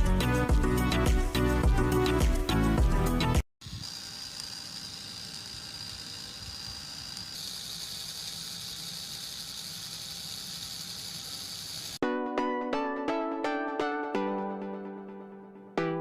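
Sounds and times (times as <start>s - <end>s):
small electric motor whining: 3.6s - 12.0s.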